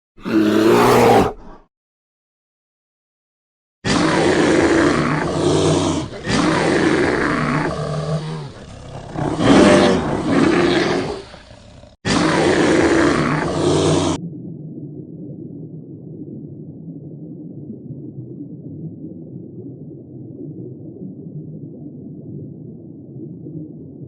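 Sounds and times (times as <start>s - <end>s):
large animal roaring: 0.2s - 1.6s, 3.9s - 14.2s.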